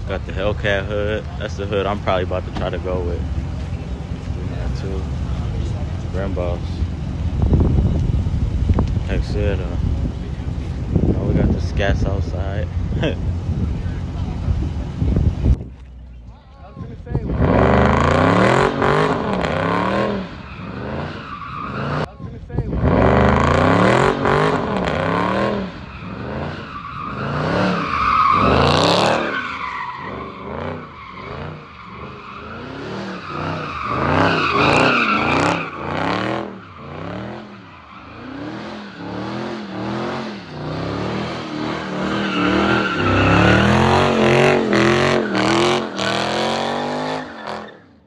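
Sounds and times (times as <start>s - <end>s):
car engine revving: 0.0s - 16.2s, 16.8s - 47.8s
tyres squealing: 18.0s - 22.1s, 25.0s - 40.7s, 41.3s - 47.9s.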